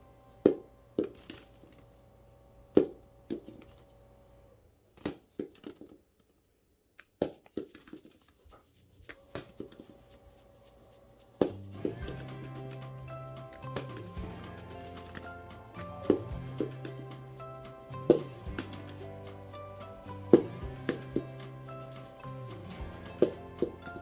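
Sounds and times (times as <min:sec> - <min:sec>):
rubber balls bouncing: 0:00.4 - 0:01.8, 0:02.7 - 0:03.9, 0:04.9 - 0:06.4, 0:07.0 - 0:10.2, 0:11.2 - 0:24.0
music: 0:09.1 - 0:24.0.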